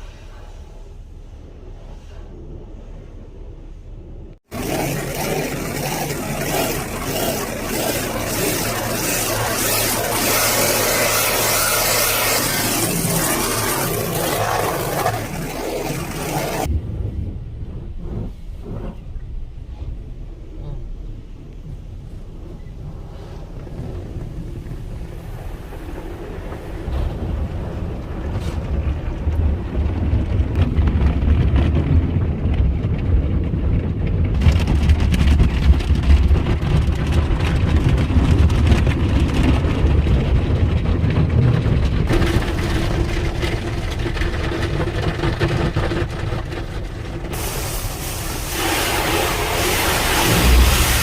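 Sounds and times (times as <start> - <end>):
car wash equipment rumbling: 0.0 - 51.0
water against car body: 4.4 - 16.7, 34.3 - 51.0
spray hissing: 47.4 - 51.0
steady hum: 47.4 - 51.0.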